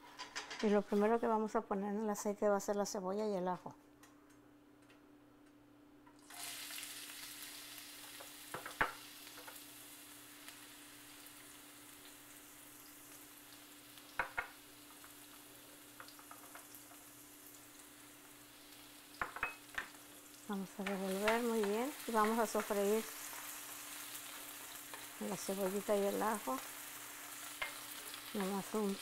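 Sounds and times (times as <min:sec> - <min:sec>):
onion sizzling in a frying pan: 0:06.2 - 0:29.0.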